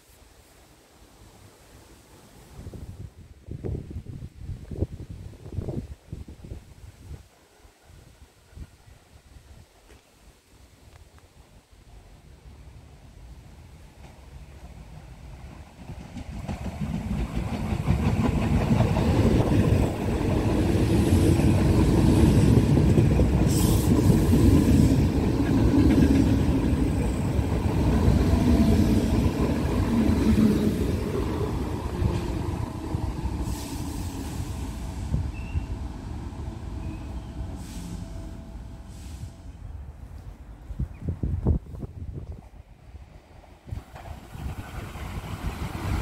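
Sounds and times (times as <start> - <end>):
train wheels rumbling on rails: 13.8 - 39.6, 43.4 - 46.0.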